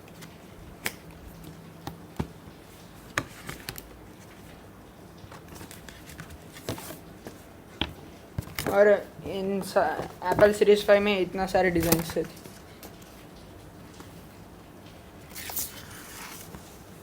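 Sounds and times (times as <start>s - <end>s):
cardboard packaging clicks and taps: 0.1s - 2.4s, 5.2s - 8.8s
packaging rustle: 5.2s - 7.5s, 15.3s - 17.0s.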